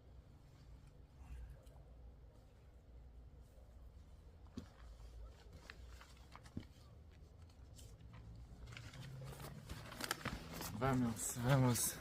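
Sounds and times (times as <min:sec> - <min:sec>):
faint clicks and rustles: 0:03.4 - 0:11.6.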